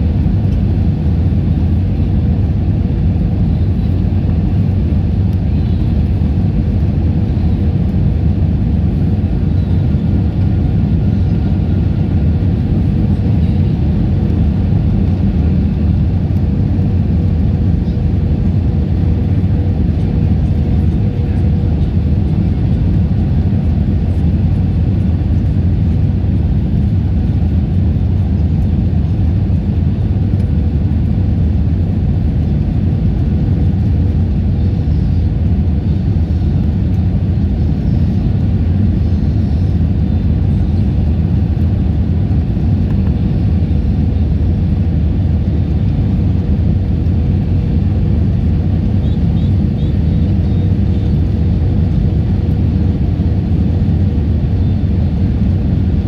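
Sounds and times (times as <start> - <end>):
faint hum: 0.0 - 56.0.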